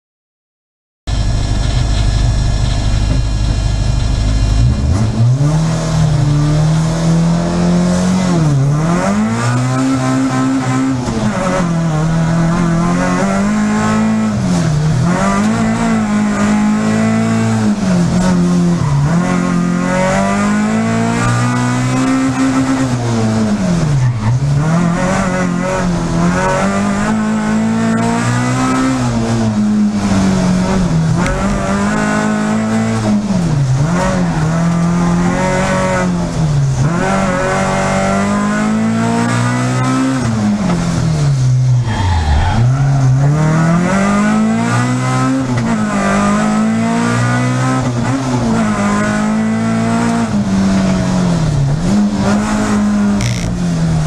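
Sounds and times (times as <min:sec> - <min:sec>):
rally car engine revving: 0:01.1 - 0:54.0.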